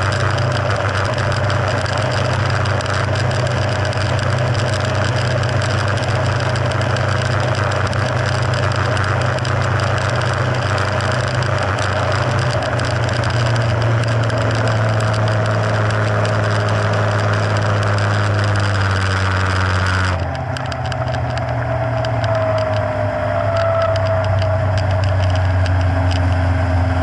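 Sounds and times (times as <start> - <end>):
broad rushing noise: 0.0 - 27.0
outboard motor running: 0.0 - 27.0.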